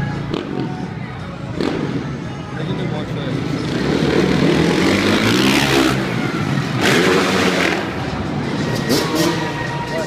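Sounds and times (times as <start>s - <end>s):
dirt bike engine revving: 3.5s - 9.7s.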